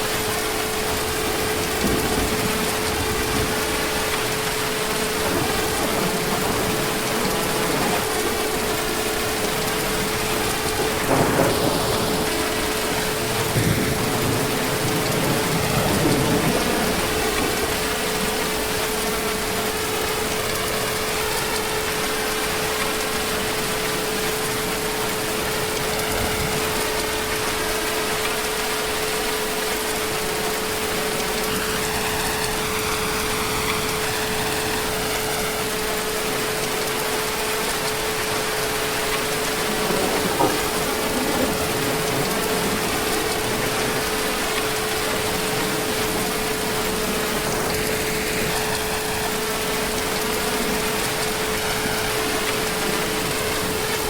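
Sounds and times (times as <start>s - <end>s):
heavy rain falling: 0.0s - 54.0s
thunder rolling: 0.8s - 21.5s, 37.4s - 54.0s.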